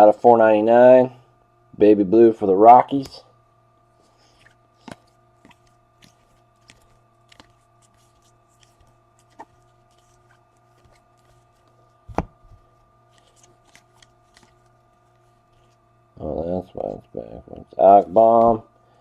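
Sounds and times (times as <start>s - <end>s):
faint steady hum: 0.0s - 19.0s
cards handled on a table: 4.0s - 15.8s
thump on table: 12.1s - 12.4s.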